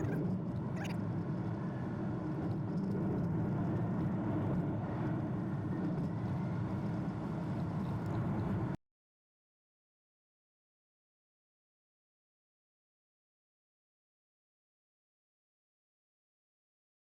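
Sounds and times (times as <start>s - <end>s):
car driving road and engine noise: 0.0s - 8.8s.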